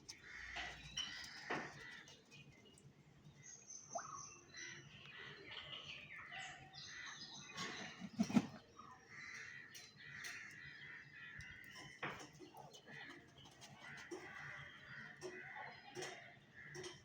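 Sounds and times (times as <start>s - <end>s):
birds chirping: 0.0s - 17.0s
crows cawing: 0.1s - 2.2s.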